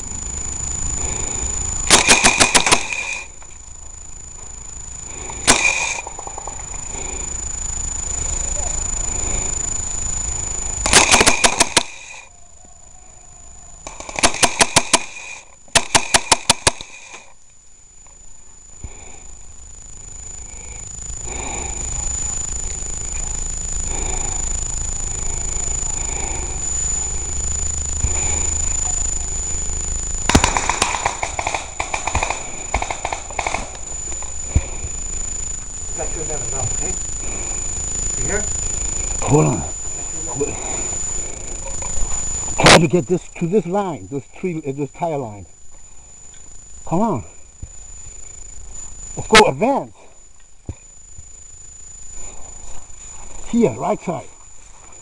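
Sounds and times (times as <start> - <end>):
whine under gunfire: 0.0 - 13.2, 13.8 - 55.0
airsoft gun firing bursts: 1.9 - 3.3, 5.4 - 6.3, 10.8 - 12.2, 13.9 - 17.2, 30.3 - 33.7.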